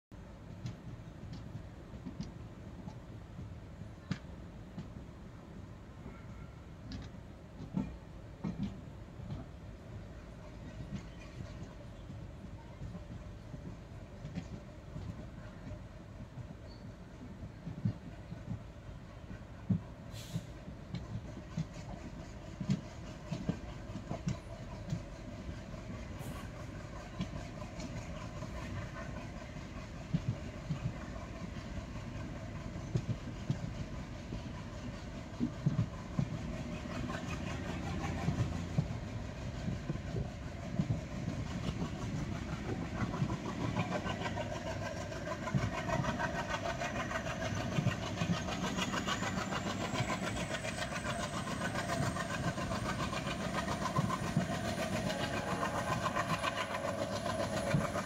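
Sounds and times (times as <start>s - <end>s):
train running on rails: 0.0s - 58.0s
wheels clicking over track: 20.4s - 58.0s
thin high whine: 53.4s - 58.0s.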